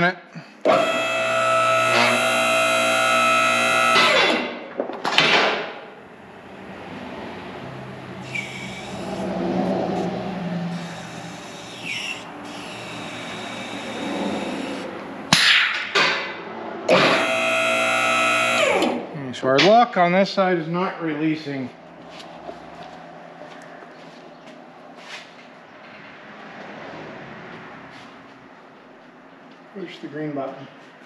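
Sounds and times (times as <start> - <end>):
hydraulic pump motor running: 0.6 - 4.6, 8.0 - 15.3, 16.9 - 19.1
sharp metallic clank: 15.3 - 17.2.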